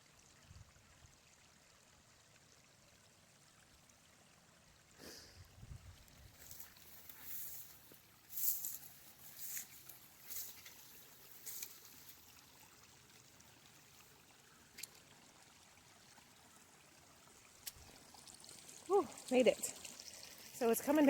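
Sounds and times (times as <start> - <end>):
stream trickling over rock: 0.0 - 21.0
crunching footsteps: 6.3 - 12.2.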